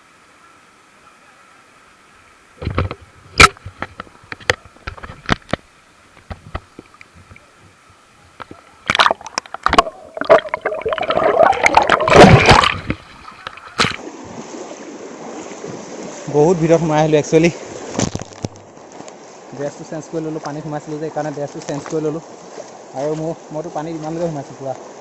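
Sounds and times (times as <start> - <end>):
water splashing from wading: 8.3 - 25.0.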